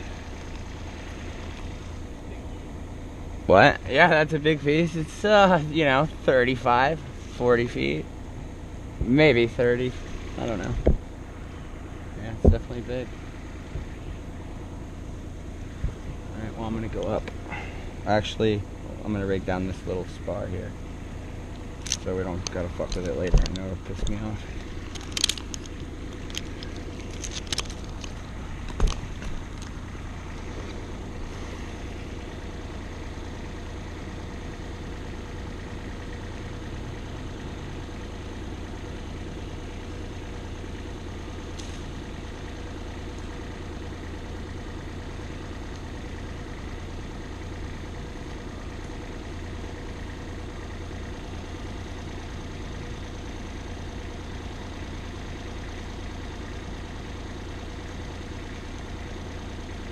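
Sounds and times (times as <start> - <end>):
engine idling: 0.0 - 59.9
sharp clicks: 21.6 - 30.5.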